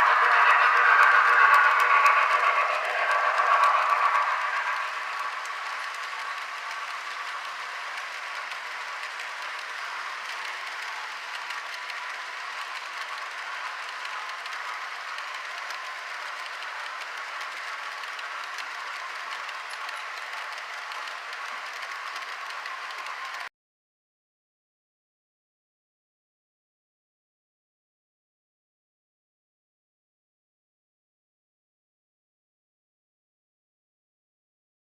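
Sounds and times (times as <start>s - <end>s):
model steam locomotive hiss: 0.0s - 23.5s.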